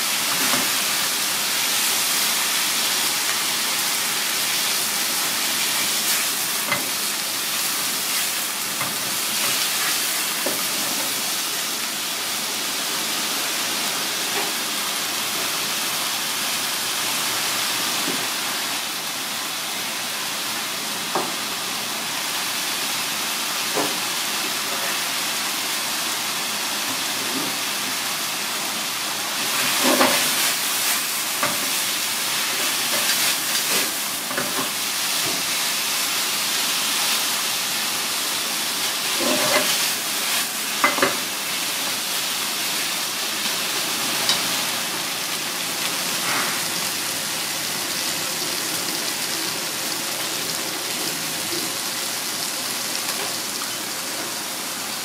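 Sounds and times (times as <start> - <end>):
food sizzling in a frying pan: 0.0 - 55.0
chopsticks scraping a pan: 39.0 - 41.2.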